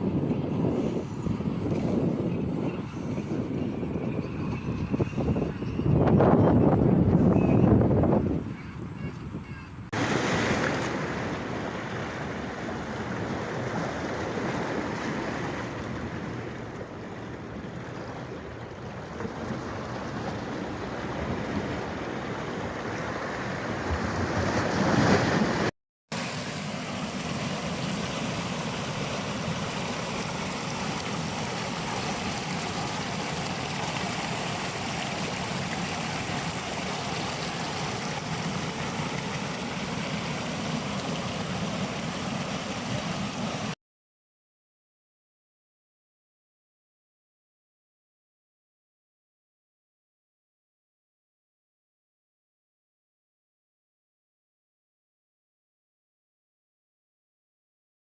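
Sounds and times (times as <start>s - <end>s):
rushing flowing water: 10.0s - 43.8s.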